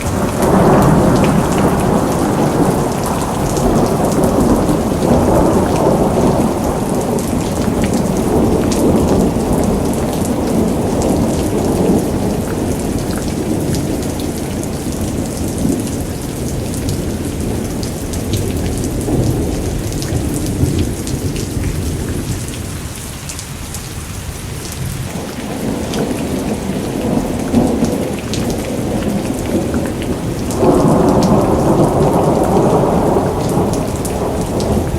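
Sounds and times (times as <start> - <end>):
rolling thunder: 0.0 - 22.6, 24.5 - 34.9
raindrops pattering on surfaces: 0.0 - 34.9
steady rain: 0.0 - 34.9.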